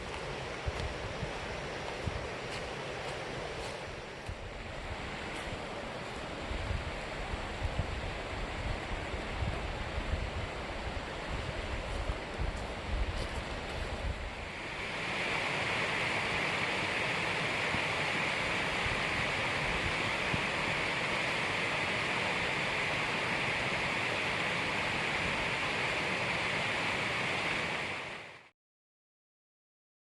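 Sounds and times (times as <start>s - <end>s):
wind buffeting microphone: 0.0s - 15.1s
creek water over rocks: 0.0s - 28.4s.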